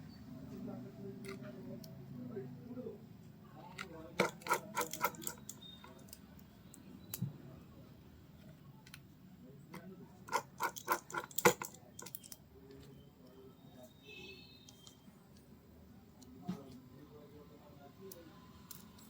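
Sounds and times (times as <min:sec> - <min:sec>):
small hard parts clicking: 0:03.6 - 0:07.3, 0:09.7 - 0:12.8, 0:18.1 - 0:19.0.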